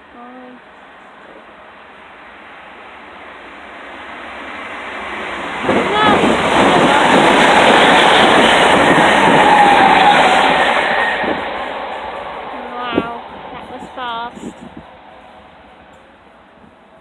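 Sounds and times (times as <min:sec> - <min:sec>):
train passing: 0:00.0 - 0:17.0.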